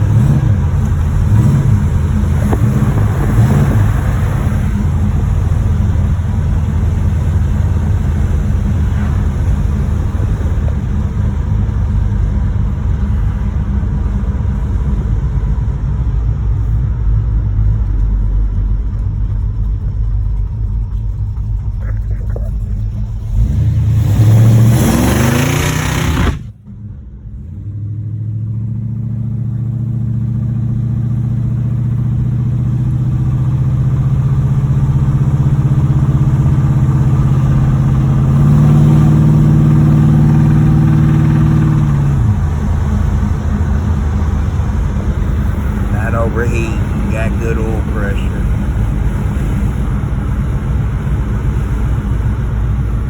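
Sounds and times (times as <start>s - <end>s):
car engine revving hard: 0.0s - 15.6s, 22.6s - 26.6s, 27.5s - 53.0s
car engine knocking: 0.0s - 24.0s, 29.5s - 53.0s
steady engine drone: 0.0s - 53.0s.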